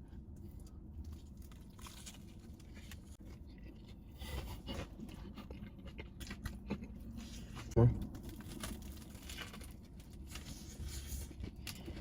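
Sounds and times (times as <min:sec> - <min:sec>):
food wrapping rustling: 0:07.2 - 0:12.0.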